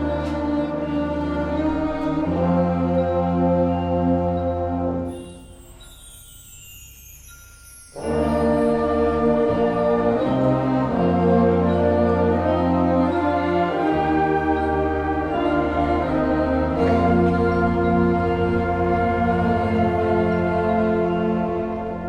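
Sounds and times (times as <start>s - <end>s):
concert band playing held chords: 8.0s - 22.0s.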